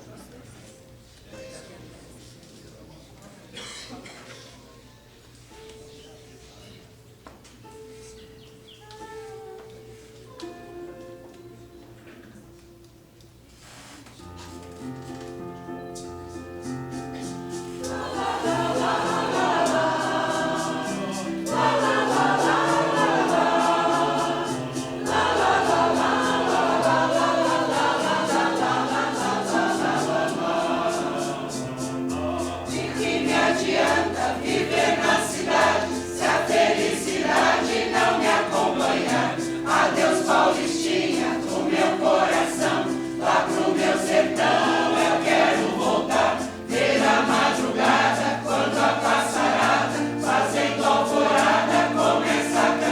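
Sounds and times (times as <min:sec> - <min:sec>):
choir singing: 0:17.1 - 0:52.9.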